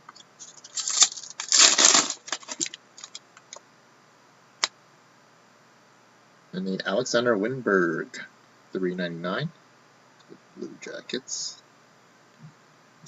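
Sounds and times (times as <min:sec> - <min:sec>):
cards rustling: 0:00.4 - 0:03.2.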